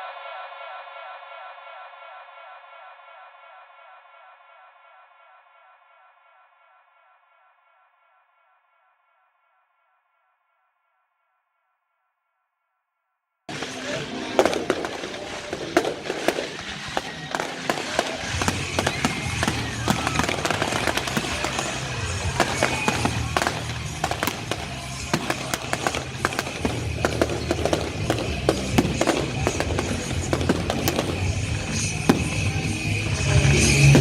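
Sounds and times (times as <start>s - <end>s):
fireworks bursting and crackling: 13.5s - 34.0s.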